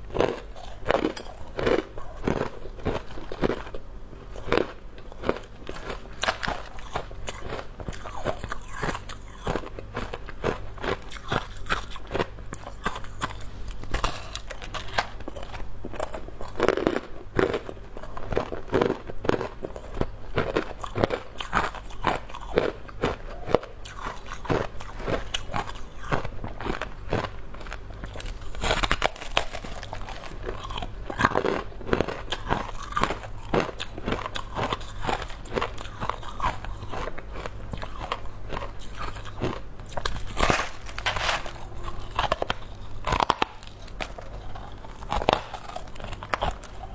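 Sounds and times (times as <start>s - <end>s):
ice crunching being chewed: 0.0s - 46.9s.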